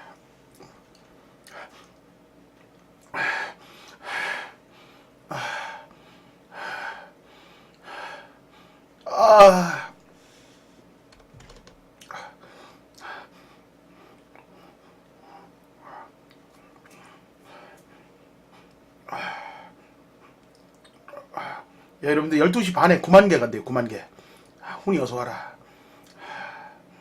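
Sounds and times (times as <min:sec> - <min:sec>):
man breathing heavily: 0:03.1 - 0:10.9, 0:12.1 - 0:16.2, 0:17.0 - 0:20.0, 0:25.5 - 0:27.0
man groaning: 0:09.1 - 0:10.0.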